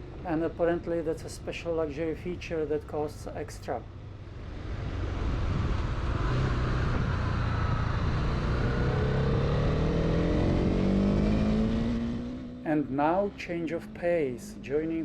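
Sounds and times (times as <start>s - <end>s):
motorcycle engine accelerating: 4.1s - 14.6s.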